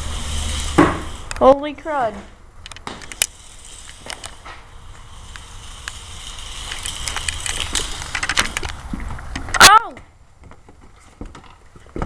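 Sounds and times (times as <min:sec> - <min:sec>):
toy car motor whine: 0:00.0 - 0:01.6, 0:03.1 - 0:08.8
wheels rattling over ground: 0:00.0 - 0:12.0.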